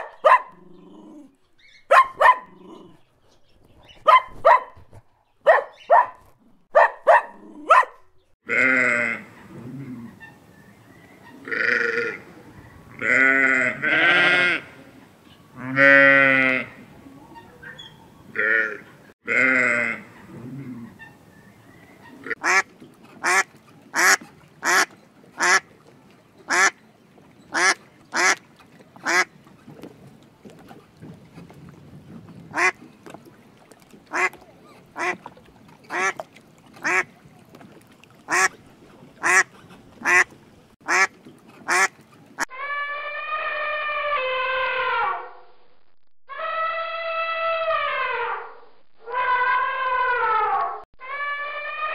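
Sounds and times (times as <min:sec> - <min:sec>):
sheep bleating: 0:08.5 - 0:09.3, 0:11.4 - 0:12.2, 0:13.0 - 0:14.8, 0:15.6 - 0:16.7, 0:18.4 - 0:20.1
ducks quacking: 0:22.0 - 0:25.8, 0:26.5 - 0:26.8, 0:27.5 - 0:29.3, 0:32.5 - 0:32.8, 0:34.1 - 0:37.2, 0:38.3 - 0:42.5
elephant trumpeting: 0:42.5 - 0:45.3, 0:46.4 - 0:51.9.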